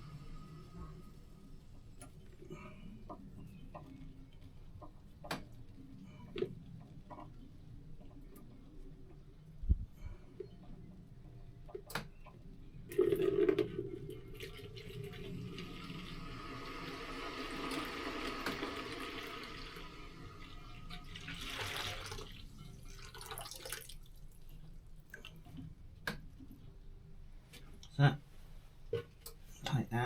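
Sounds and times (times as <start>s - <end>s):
liquid running and splashing: 14.2s - 25.4s.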